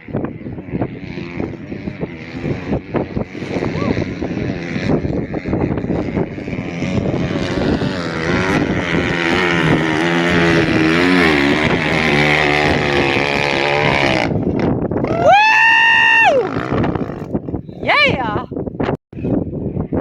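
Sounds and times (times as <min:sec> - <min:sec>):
off-road vehicle engine revving: 0:00.0 - 0:17.6
wind buffeting microphone: 0:00.0 - 0:20.0.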